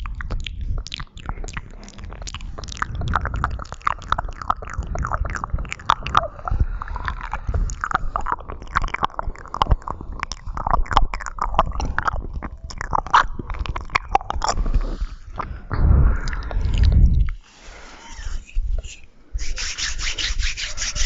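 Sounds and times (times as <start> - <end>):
wet mouth clicks and smacks: 0.0 - 17.4
low rubbing noise: 15.7 - 21.0.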